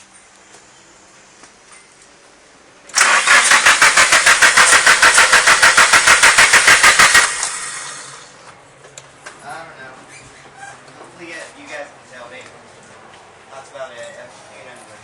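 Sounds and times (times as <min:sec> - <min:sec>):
engine cranking on starter: 0:02.9 - 0:08.4.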